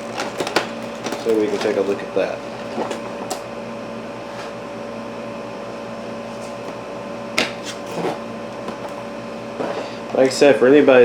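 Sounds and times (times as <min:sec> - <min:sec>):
packaging clicks and rustles: 0:00.0 - 0:03.4, 0:07.6 - 0:10.4
room hum with faint whine: 0:00.0 - 0:11.0.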